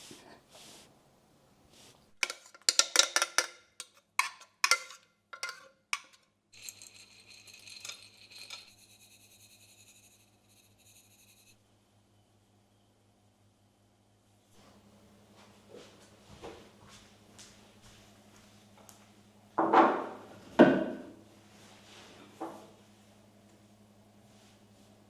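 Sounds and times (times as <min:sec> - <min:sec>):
sharp clinks and knocks: 0:02.2 - 0:09.0.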